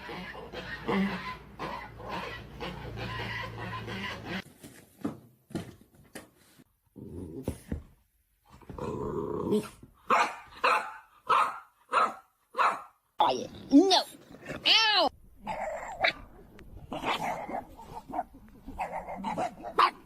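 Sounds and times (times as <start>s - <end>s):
dog growling: 6.9s - 7.6s, 8.6s - 9.9s, 13.2s - 20.0s.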